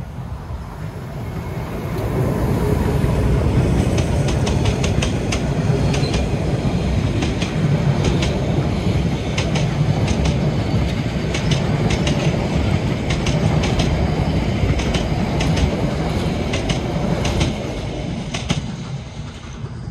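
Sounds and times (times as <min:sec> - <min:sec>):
train rumbling past: 0:00.0 - 0:19.9
wheels clicking over rail joints: 0:03.6 - 0:06.4, 0:07.0 - 0:14.0, 0:14.6 - 0:19.8.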